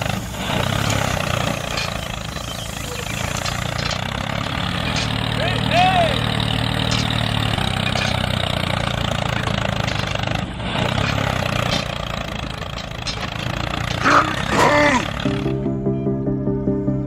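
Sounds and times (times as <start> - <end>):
engine running: 0.0 - 17.0
background music: 14.2 - 17.0.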